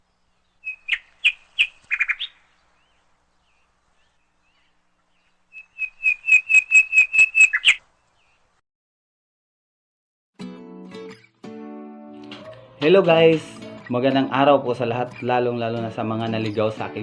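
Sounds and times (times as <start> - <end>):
bird chirping: 0.0 - 8.6, 12.3 - 17.0.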